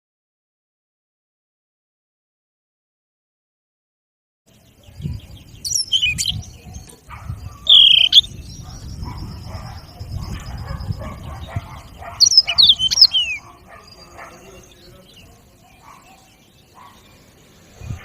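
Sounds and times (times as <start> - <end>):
canary singing: 4.5 - 18.0.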